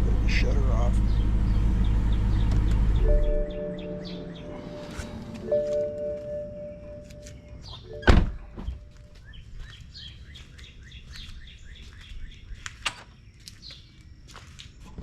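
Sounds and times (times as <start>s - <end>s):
steady low rumble: 0.0s - 10.2s
bird chirping: 0.4s - 14.0s
heavy thunk: 8.0s - 8.8s.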